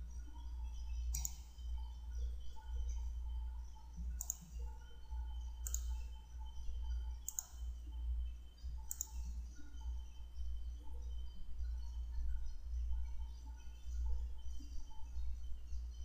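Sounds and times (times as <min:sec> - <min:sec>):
low electrical hum: 0:00.0 - 0:16.0
computer mouse clicking: 0:01.1 - 0:01.6, 0:04.0 - 0:04.8, 0:05.6 - 0:06.2, 0:07.2 - 0:07.7, 0:08.8 - 0:09.4.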